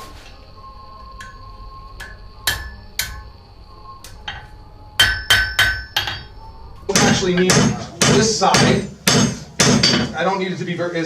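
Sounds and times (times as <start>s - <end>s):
hammer striking steel on anvil: 1.2s - 3.4s, 4.2s - 10.2s.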